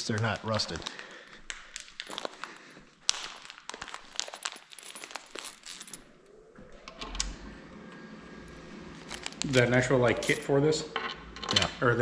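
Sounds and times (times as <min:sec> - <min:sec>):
metal bolts clinking and rattling: 0:03.9 - 0:06.1.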